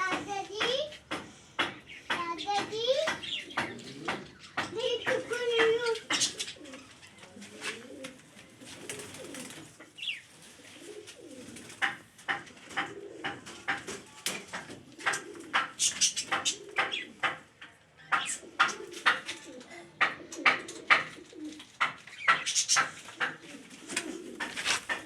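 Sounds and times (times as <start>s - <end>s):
sharp taps and clicks: 0.0s - 6.3s, 11.8s - 19.4s, 20.0s - 23.4s
pigeons cooing: 0.0s - 25.0s.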